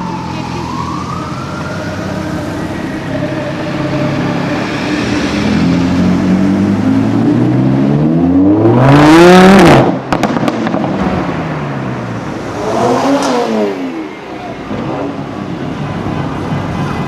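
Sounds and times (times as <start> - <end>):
sports car engine accelerating: 3.8 - 15.3.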